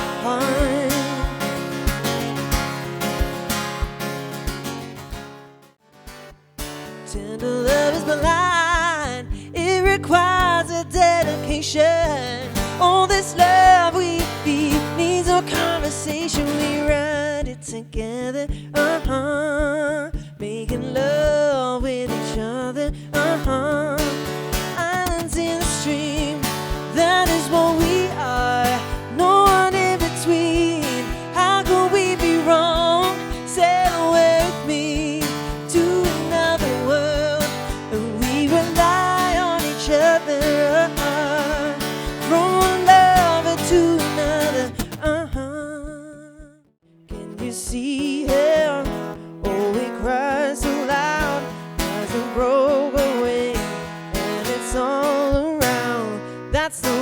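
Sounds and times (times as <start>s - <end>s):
woman singing: 0.0s - 2.7s, 6.9s - 57.0s
strummed acoustic guitar: 0.0s - 57.0s.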